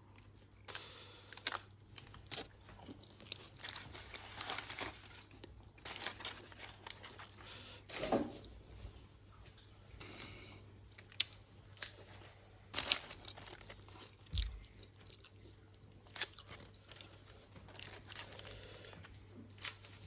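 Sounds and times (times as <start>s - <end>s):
close-miked chewing: 10.0s - 20.0s.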